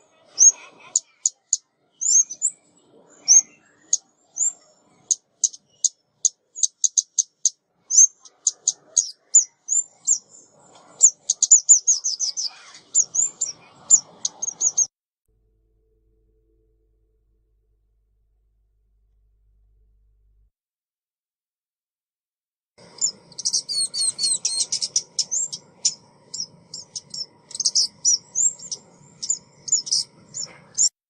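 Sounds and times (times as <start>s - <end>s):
songbird high chirps and trill: 0.3s - 14.9s, 22.8s - 30.9s.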